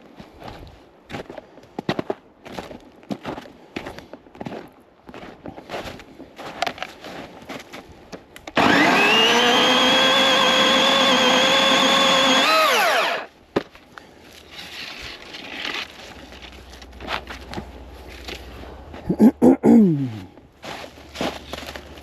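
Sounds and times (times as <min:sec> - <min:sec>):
electric chainsaw motor whine: 0:08.6 - 0:13.3.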